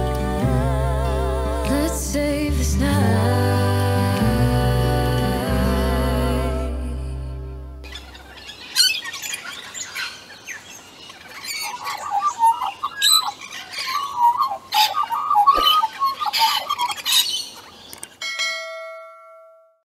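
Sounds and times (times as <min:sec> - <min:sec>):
birds chirping and squawking: 0:07.8 - 0:18.2.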